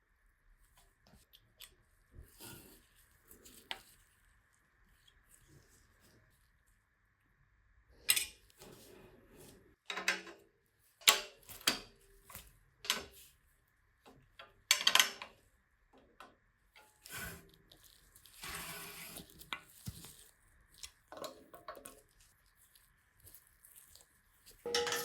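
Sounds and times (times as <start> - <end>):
metal parts clicking and clinking: 24.7 - 25.0.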